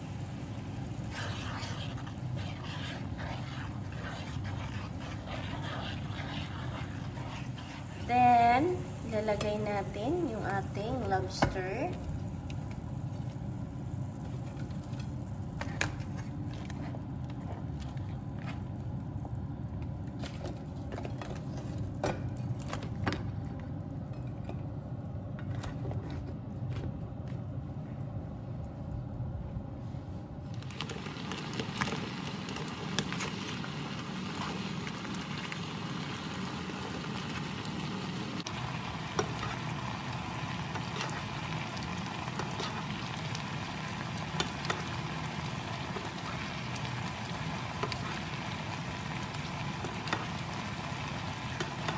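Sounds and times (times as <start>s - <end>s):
sauce sizzling in a pan: 0.0s - 15.7s, 30.6s - 51.9s.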